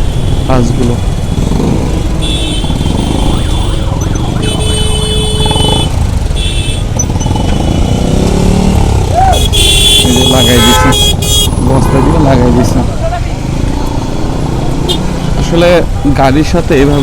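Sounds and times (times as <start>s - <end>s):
motorcycle engine rumble: 0.0s - 16.1s
vehicle horn blasts: 2.2s - 3.8s, 4.4s - 6.9s, 9.4s - 12.1s.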